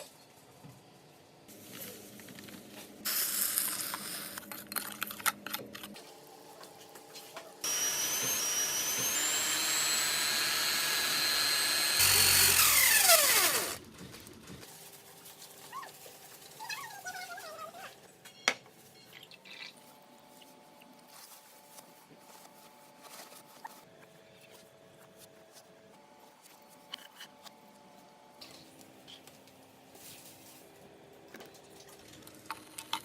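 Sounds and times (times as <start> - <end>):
electric drill whining: 7.6 - 13.8.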